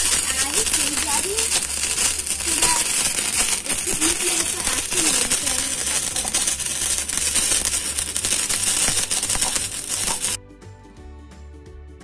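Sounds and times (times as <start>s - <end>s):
baking soda volcano fizzing: 0.0s - 10.4s
soft instrumental music: 4.2s - 12.0s.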